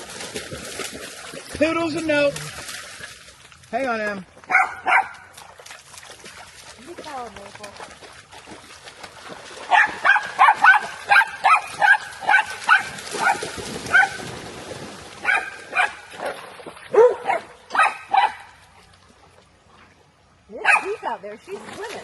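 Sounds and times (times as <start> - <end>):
dog barking high-pitched: 4.5 - 5.2, 9.7 - 14.2, 15.2 - 16.0, 16.9 - 18.5.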